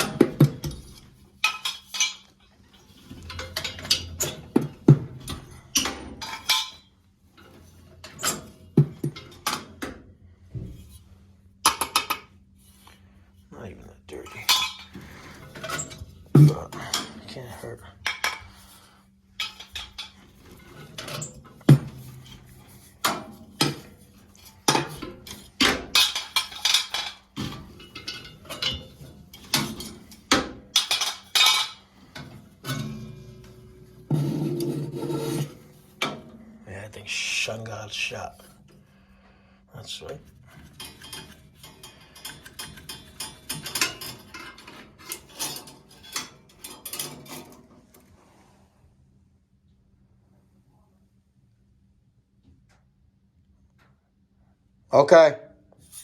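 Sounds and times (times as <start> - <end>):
metal parts clanking: 0.0 - 10.0, 14.2 - 36.4, 40.0 - 47.7.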